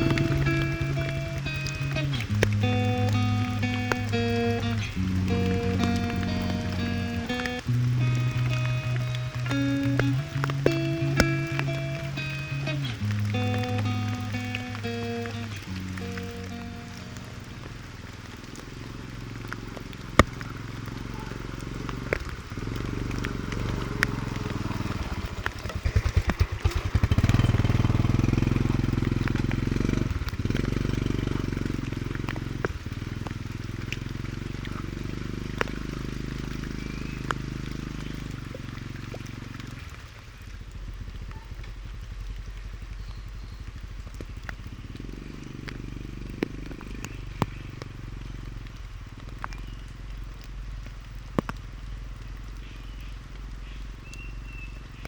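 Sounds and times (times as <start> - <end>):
sharp clicks: 0.0 - 34.8
motorcycle engine idling: 0.0 - 55.0.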